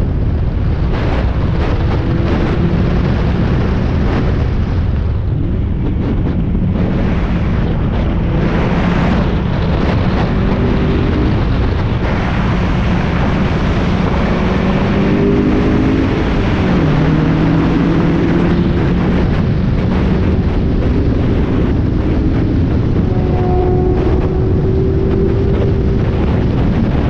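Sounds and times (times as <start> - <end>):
wind and road noise: 0.0 - 27.0
race car engine accelerating: 5.5 - 27.0.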